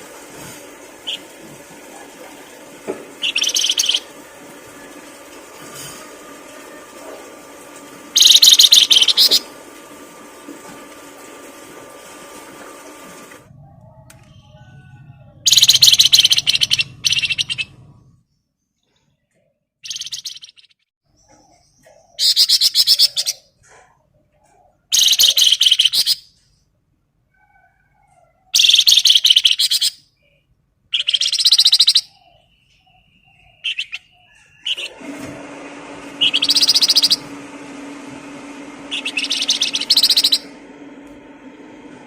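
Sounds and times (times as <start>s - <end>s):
songbird chirping: 3.2s - 4.1s, 13.9s - 23.5s, 27.4s - 34.9s, 38.9s - 40.5s.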